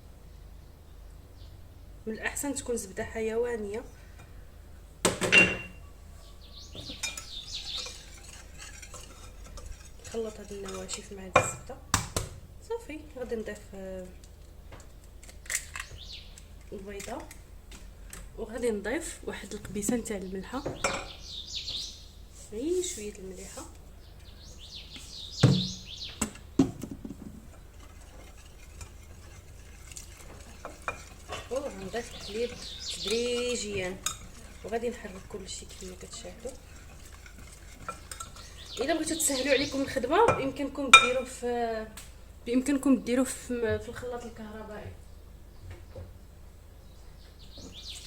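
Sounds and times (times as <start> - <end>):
kitchen utensils knocking: 5.1 - 5.8, 19.8 - 21.2, 25.4 - 41.3
bird chirping: 5.4 - 8.6, 14.8 - 17.0, 19.4 - 23.1, 23.9 - 26.7, 31.3 - 41.2, 45.0 - 48.0
faint scraping in bowl: 6.7 - 11.3, 26.9 - 40.6.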